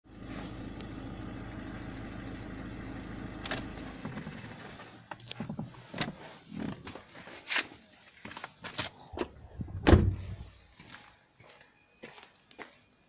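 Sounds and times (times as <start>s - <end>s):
car engine idling: 0.1s - 5.3s.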